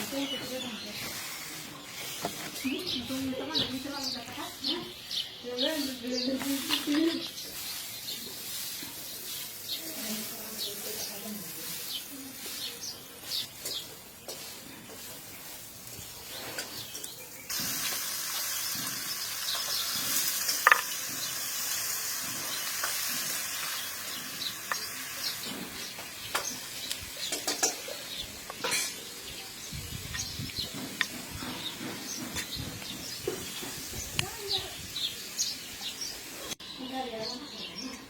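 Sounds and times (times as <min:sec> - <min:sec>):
food sizzling in a pan: 0:06.4 - 0:30.2
spoon scraping and knocking pan: 0:13.5 - 0:15.2, 0:16.2 - 0:21.4, 0:24.4 - 0:29.1.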